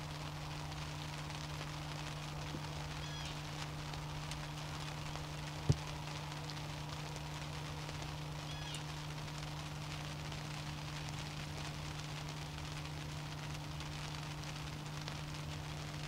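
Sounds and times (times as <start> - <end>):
constant low hum: 0.0 - 16.0
outdoor background hiss: 0.0 - 16.0
faint high bird chirp: 3.0 - 3.4.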